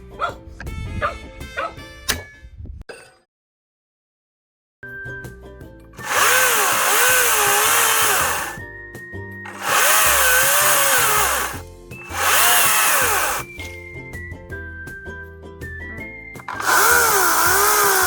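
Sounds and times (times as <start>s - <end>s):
background music: 4.9s - 18.0s
electric chainsaw cutting wood: 6.0s - 8.6s, 9.5s - 13.6s, 16.5s - 18.0s.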